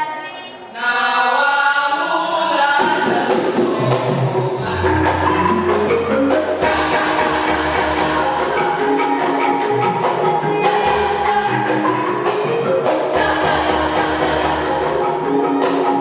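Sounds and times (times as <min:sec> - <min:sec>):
mallet-struck tuned percussion: 0:03.3 - 0:16.0.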